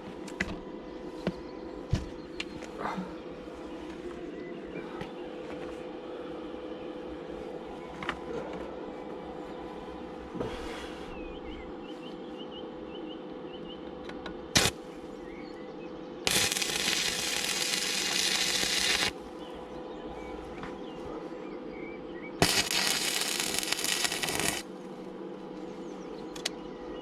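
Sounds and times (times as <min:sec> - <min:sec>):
arc welder crackling: 0:14.5 - 0:14.8, 0:16.2 - 0:19.2, 0:22.4 - 0:24.7.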